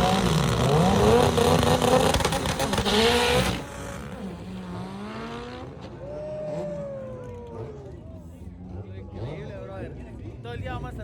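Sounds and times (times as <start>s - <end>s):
racing car engine at full throttle: 0.0s - 11.0s.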